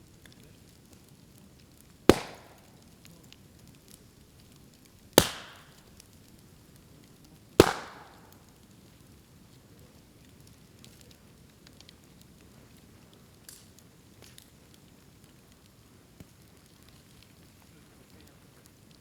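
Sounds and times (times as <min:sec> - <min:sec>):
fire crackling: 0:00.0 - 0:19.0
bamboo bursting bangs: 0:02.1 - 0:02.8, 0:05.2 - 0:05.8, 0:07.6 - 0:08.4.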